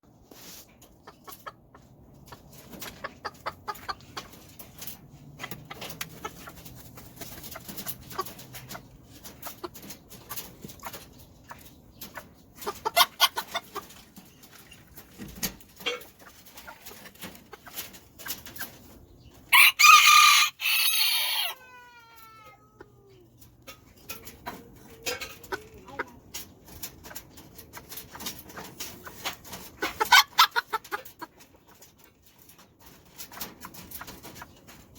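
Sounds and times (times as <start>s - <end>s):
chickens clucking: 0.1s - 34.9s
rooster crowing: 19.5s - 21.7s.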